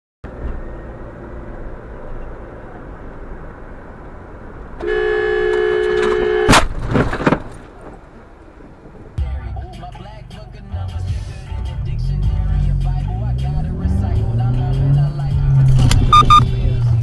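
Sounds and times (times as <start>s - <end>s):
car road noise: 0.3s - 17.0s
car horn: 4.8s - 6.6s, 15.8s - 16.8s.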